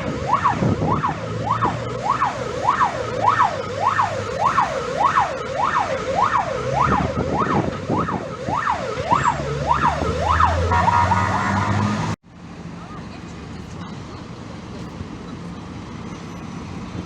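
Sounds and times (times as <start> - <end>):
fire engine siren wailing: 0.0 - 12.2.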